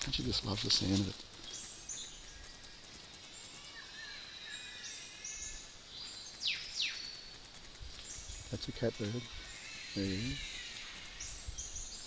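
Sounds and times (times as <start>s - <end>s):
high insect tone: 0.0s - 12.0s
soft bird calls: 0.0s - 12.0s
high whistled bird calls: 8.0s - 12.0s.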